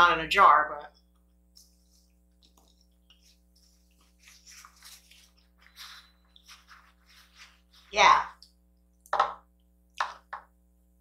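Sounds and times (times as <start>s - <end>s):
wet chewing and mouth noises: 1.1s - 4.2s.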